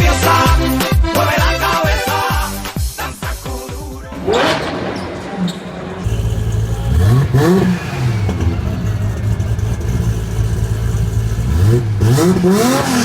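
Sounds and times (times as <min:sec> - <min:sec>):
car engine revving: 0:04.1 - 0:13.0.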